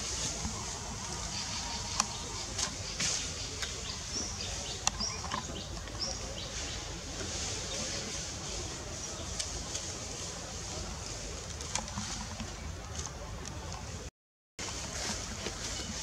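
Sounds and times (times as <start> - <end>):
small birds chirping: 0.5 - 9.9.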